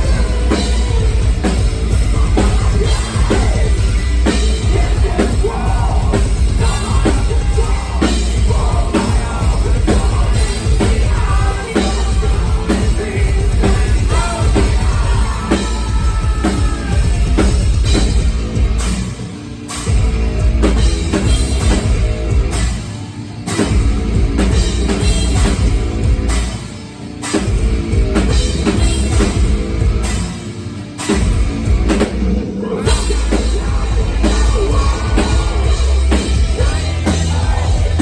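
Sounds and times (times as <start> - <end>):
person singing: 0.0 - 17.5, 32.5 - 38.0
pounding drums: 0.0 - 19.2, 31.0 - 38.0
heavy metal band playing: 0.0 - 38.0.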